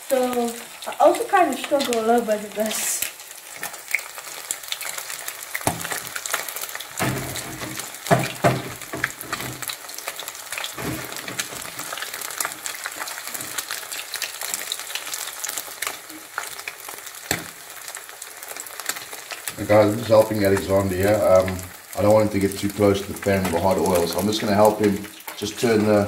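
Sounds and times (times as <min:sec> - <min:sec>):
fish sizzling in hot oil: 0:00.0 - 0:26.0
wooden spatula knocks: 0:07.0 - 0:09.6.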